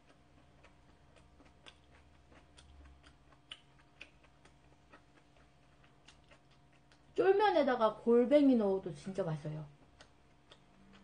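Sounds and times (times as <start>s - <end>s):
mouth chewing food: 0.0s - 7.4s, 9.7s - 11.0s.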